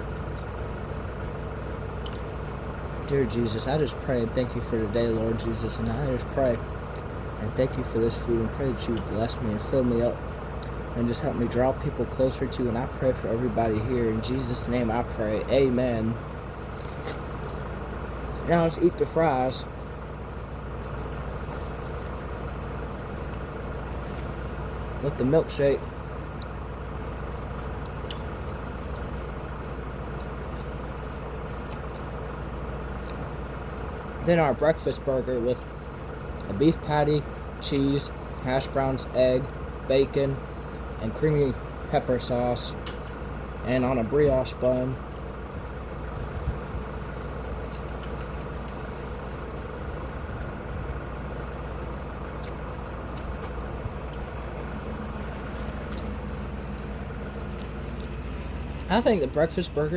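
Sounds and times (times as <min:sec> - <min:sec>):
low machine hum: 0:00.0 - 0:59.9
person eating clicks: 0:00.2 - 0:02.3, 0:26.3 - 0:29.1, 0:47.5 - 0:50.6, 0:51.3 - 0:58.9.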